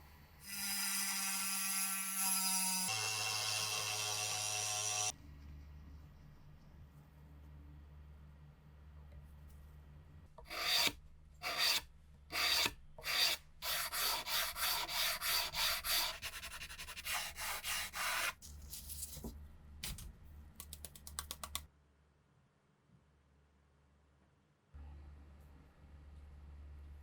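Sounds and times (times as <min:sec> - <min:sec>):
hand sanding strokes: 0:10.5 - 0:11.8, 0:12.4 - 0:18.4.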